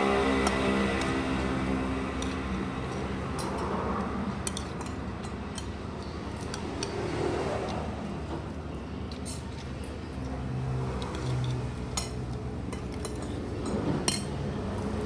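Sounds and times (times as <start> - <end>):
cutlery clinking on dishes: 4.4 - 7.0, 9.1 - 10.0, 11.0 - 15.0.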